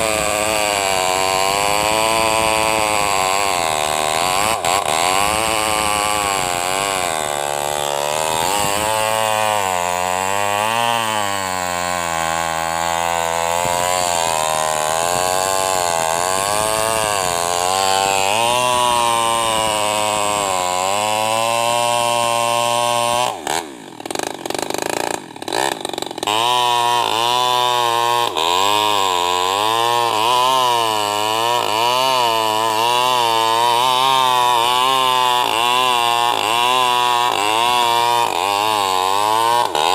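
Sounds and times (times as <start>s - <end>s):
chainsaw cutting log: 0.0s - 39.9s
chainsaw engine knocks: 23.0s - 26.6s.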